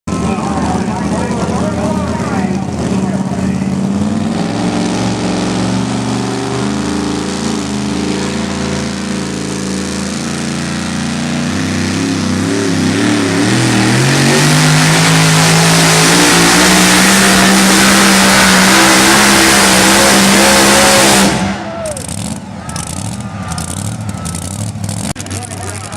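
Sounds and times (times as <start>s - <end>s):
truck engine running hard: 0.0s - 25.9s.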